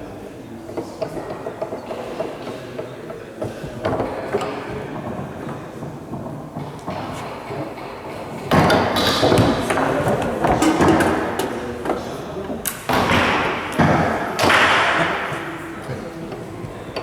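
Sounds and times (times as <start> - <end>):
rods clacking: 8.0 - 17.0
table football ball knocking: 8.5 - 15.6.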